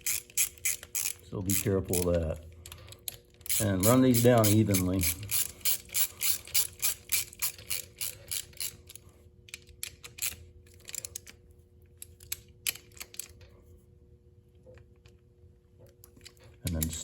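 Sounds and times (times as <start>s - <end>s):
socket ratchet clicking: 0.0s - 8.8s.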